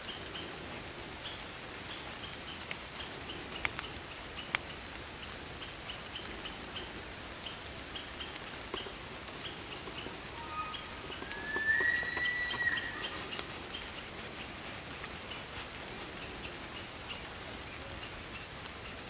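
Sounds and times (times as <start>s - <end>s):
light dripping ticks: 0.0s - 19.0s
steady hiss: 0.0s - 19.0s
whistled call: 9.4s - 13.8s.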